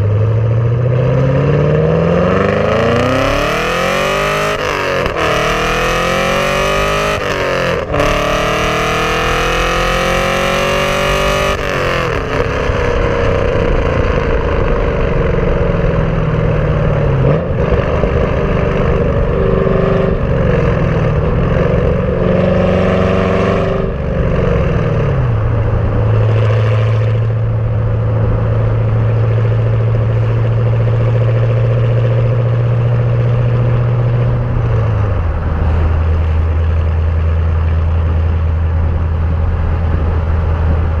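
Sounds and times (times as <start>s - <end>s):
car engine exhaust note: 0.0s - 41.0s.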